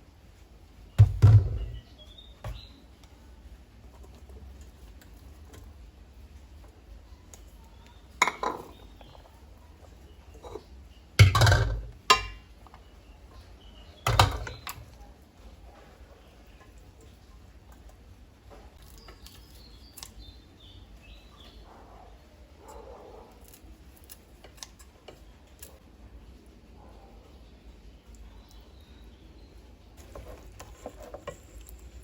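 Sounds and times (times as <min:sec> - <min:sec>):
dishes and cutlery clattering: 0:08.2 - 0:08.9, 0:10.4 - 0:12.5, 0:14.1 - 0:14.9.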